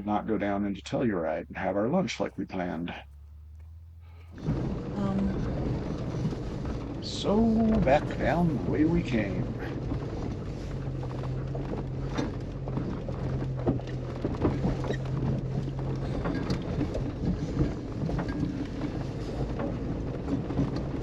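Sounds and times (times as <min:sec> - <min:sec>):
car engine hum: 0:00.0 - 0:21.0.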